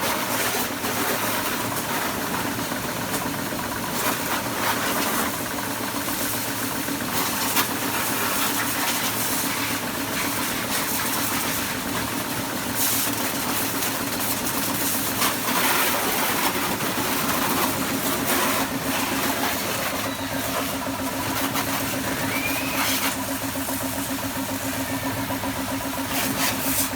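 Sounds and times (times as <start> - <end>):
hiss: 6.0 - 16.4, 21.3 - 23.8, 26.0 - 26.9
motor humming: 16.0 - 26.9
faint rising whistle: 20.0 - 20.6, 22.1 - 23.1.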